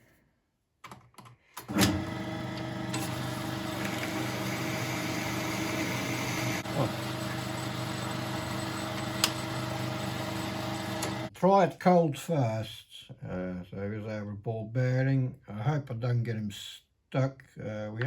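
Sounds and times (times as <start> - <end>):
electric motor humming: 1.7 - 11.3
clicks: 8.8 - 10.0, 10.8 - 11.3.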